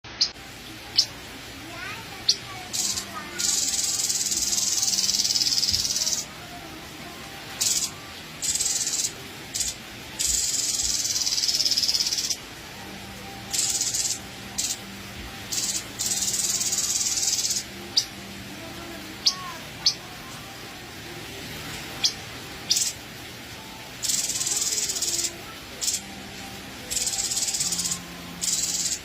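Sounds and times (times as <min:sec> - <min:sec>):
bird harsh hissing churrs: 0:01.8 - 0:06.3, 0:07.6 - 0:12.4, 0:13.5 - 0:14.9, 0:15.5 - 0:18.1, 0:22.0 - 0:23.0, 0:24.0 - 0:26.1, 0:26.9 - 0:29.0.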